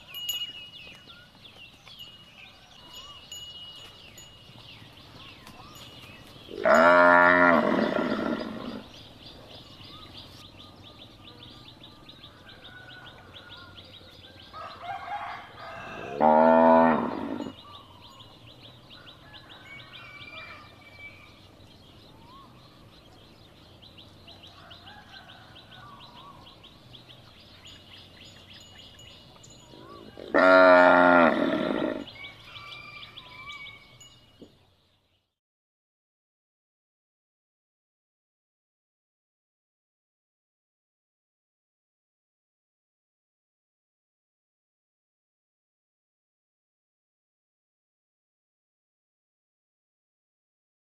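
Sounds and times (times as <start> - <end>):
cow mooing: 6.6 - 8.9, 15.8 - 17.6, 29.8 - 32.1.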